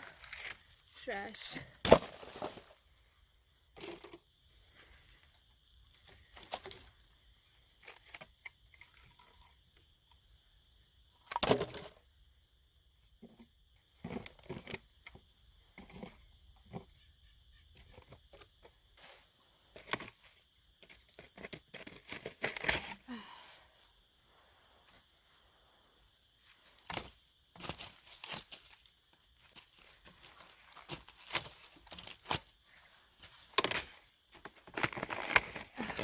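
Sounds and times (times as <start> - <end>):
plastic litter crinkling: 34.5 - 36.0.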